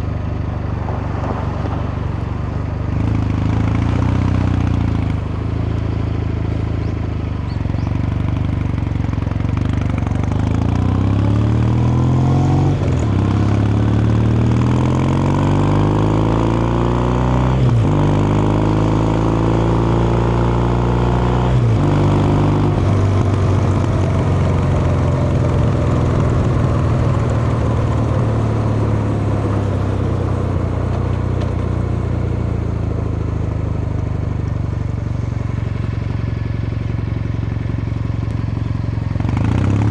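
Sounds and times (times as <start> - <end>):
motorcycle accelerating through gears: 0.0 - 39.9.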